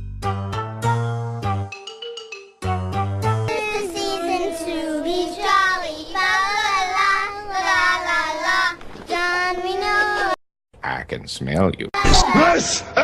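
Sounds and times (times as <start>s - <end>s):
child singing: 3.5s - 10.4s.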